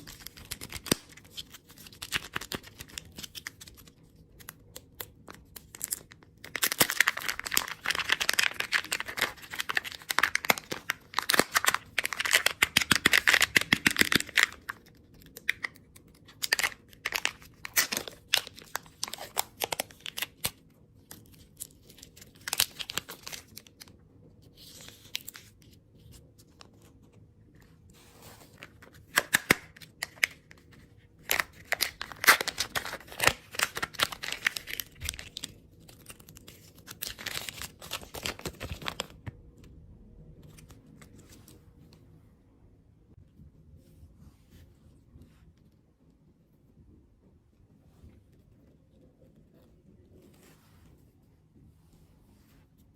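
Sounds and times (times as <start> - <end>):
plastic wrappers crinkling: 0.0 - 20.6, 31.2 - 39.2.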